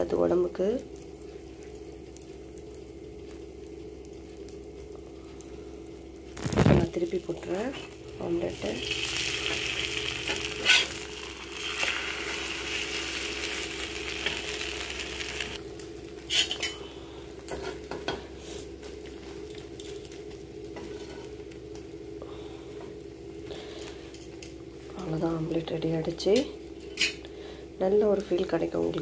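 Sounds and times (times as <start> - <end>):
omelette sizzling in butter: 6.0 - 16.8
metal spatula scraping pan: 10.3 - 11.0.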